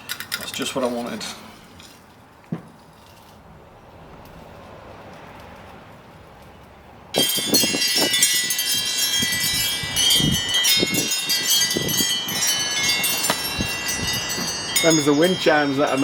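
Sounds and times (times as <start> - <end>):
chimes knocking together: 7.2 - 16.0
wind chimes ringing: 7.2 - 16.0.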